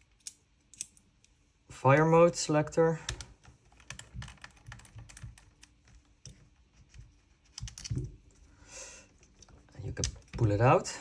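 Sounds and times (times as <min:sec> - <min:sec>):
hex key clicking on metal parts: 0:00.1 - 0:01.3.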